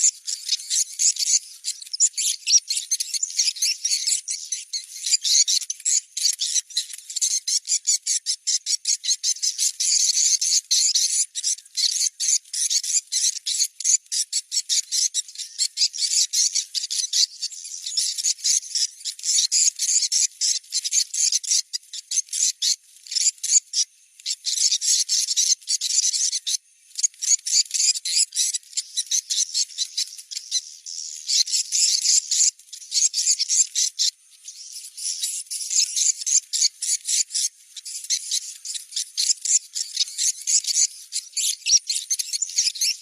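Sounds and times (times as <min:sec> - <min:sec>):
high twittering bird chirps: 0:00.0 - 0:43.0.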